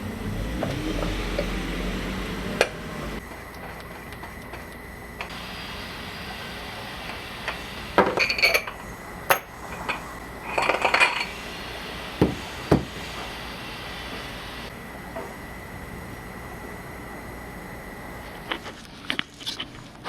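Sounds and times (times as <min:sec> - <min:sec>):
metal tools clinking: 0:08.0 - 0:11.3.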